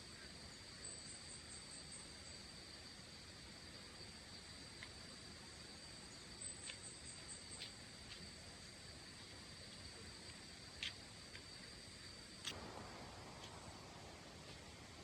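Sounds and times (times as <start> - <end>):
short insect chirps: 4.0 - 15.0.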